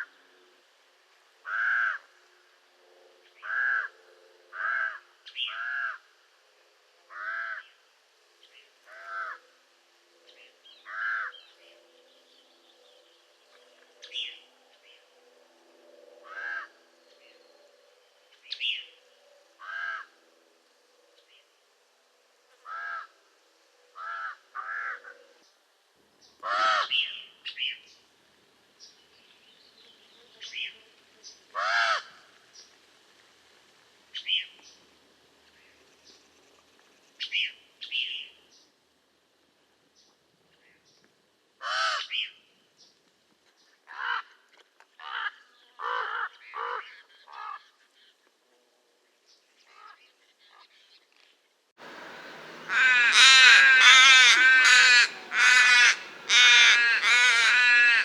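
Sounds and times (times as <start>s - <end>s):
raven calling: 1.4s - 2.1s, 10.8s - 11.4s, 51.8s - 58.0s.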